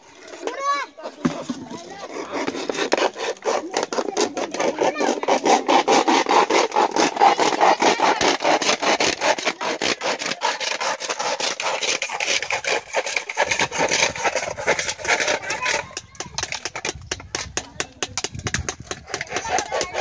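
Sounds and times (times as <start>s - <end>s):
hand saw scraping strokes: 0.0s - 20.0s.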